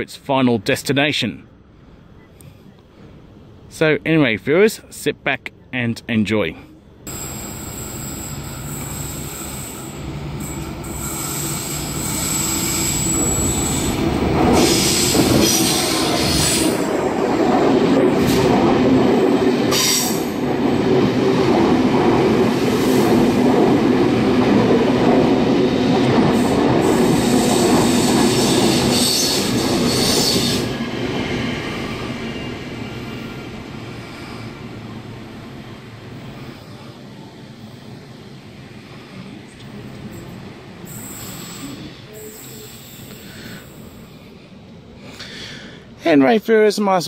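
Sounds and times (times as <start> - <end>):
wheel squeals: 7.1 - 14.0, 27.2 - 33.0
train wheels rumbling on rail: 7.1 - 44.9.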